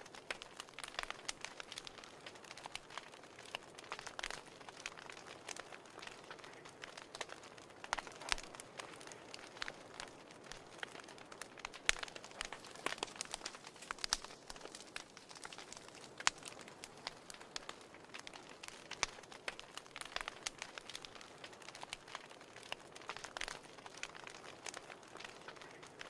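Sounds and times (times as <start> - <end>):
fire popping and snapping: 0.0 - 26.0
fire hissing: 0.1 - 26.0.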